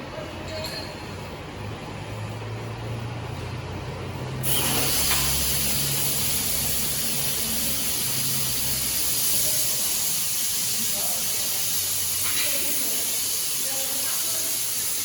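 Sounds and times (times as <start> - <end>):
gas cutting torch hissing: 4.4 - 15.0.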